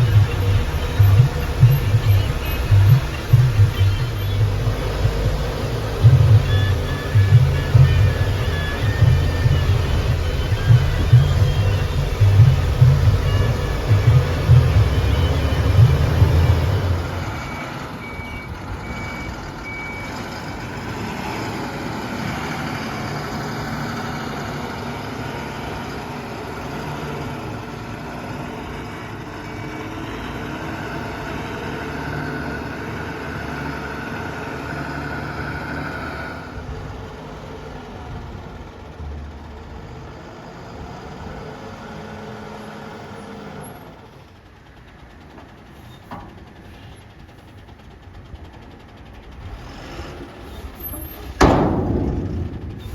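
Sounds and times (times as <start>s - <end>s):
reversing alarm beeping: 0.0s - 22.4s
diesel engines running: 0.0s - 52.9s.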